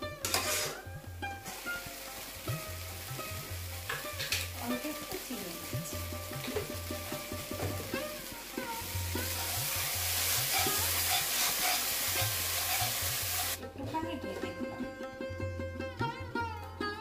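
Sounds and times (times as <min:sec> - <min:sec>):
masala sizzling in a wok: 0:00.0 - 0:13.7
metal spatula stirring and scraping: 0:00.2 - 0:02.3, 0:06.3 - 0:13.6.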